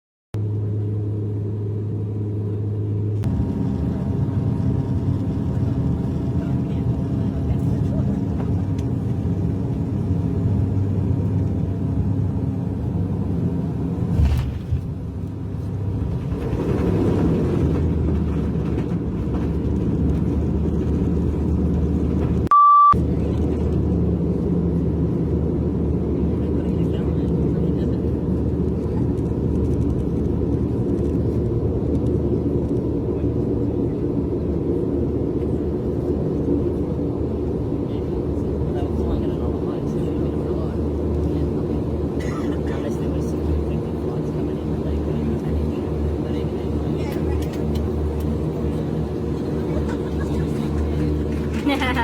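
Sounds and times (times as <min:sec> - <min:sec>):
aircraft engine drone: 0:00.4 - 0:52.0
high beep: 0:22.5 - 0:23.0.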